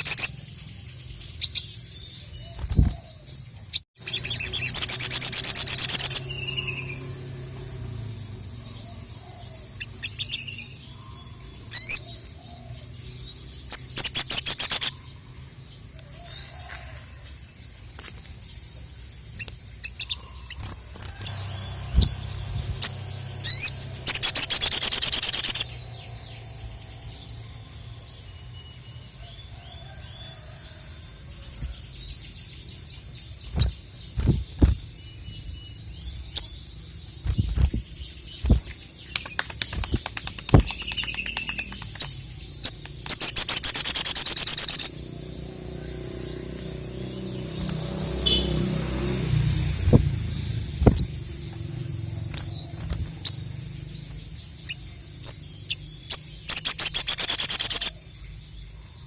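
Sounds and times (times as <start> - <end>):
bird chirping: 0.0 - 59.0
rapid bird trill: 4.0 - 12.4, 13.6 - 15.2, 19.2 - 29.0, 32.8 - 58.4.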